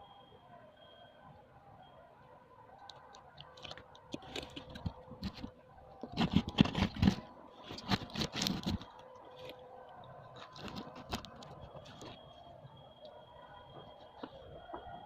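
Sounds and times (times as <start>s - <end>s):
hands handling plastic parts: 2.8s - 9.6s, 10.3s - 12.2s.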